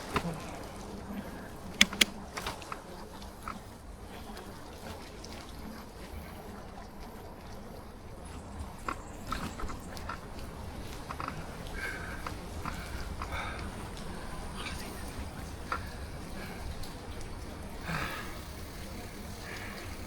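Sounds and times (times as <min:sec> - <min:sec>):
bicycle rolling on wet road: 0:00.0 - 0:20.0
sharp clicks: 0:01.8 - 0:02.5
light ticks: 0:01.8 - 0:02.6.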